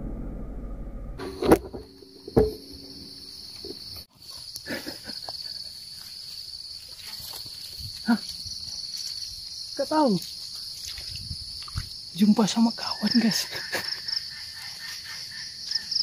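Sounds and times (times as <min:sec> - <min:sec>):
sharp knocks: 0:01.2 - 0:03.8.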